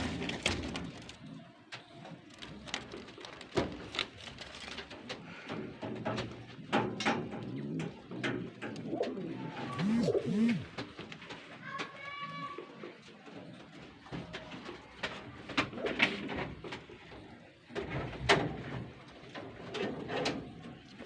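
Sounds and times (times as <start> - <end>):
pigeons cooing: 6.5 - 10.7.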